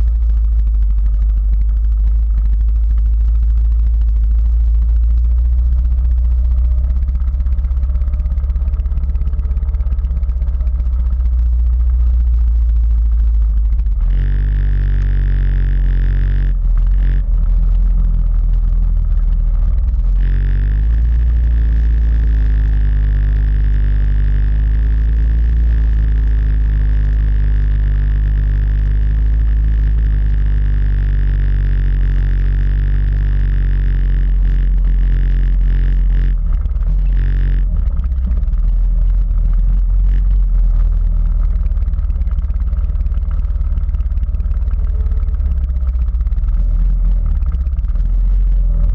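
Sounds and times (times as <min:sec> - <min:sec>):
quad bike engine running: 0:00.0 - 0:48.9
steady whine: 0:00.0 - 0:48.9.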